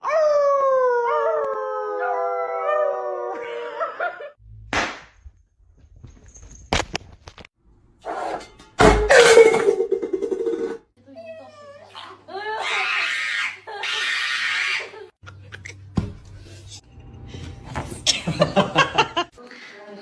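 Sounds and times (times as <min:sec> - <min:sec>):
dog howling: 0:00.0 - 0:04.2.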